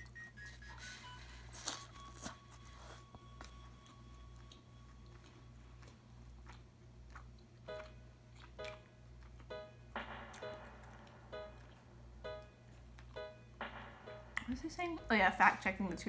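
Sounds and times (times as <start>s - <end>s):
chewing and biting food: 0.0s - 9.6s.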